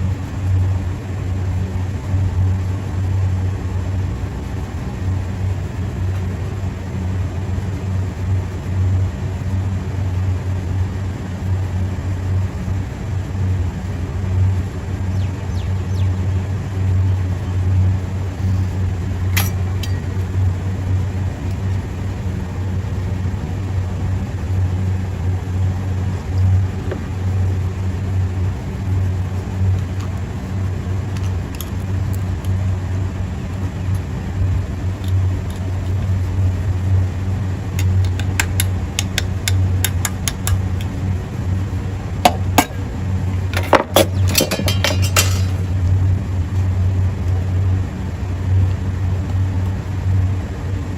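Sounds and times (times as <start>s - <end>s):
low machinery hum: 0.0s - 50.9s
metallic clicks and clinks: 19.3s - 20.1s, 43.5s - 45.6s.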